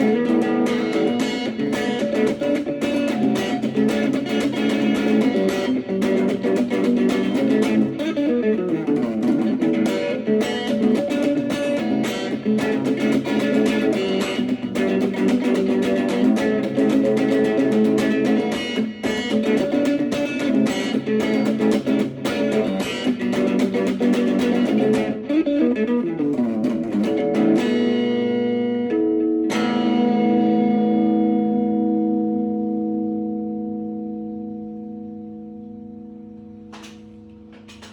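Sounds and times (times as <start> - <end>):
plucked guitar music: 0.0 - 37.9.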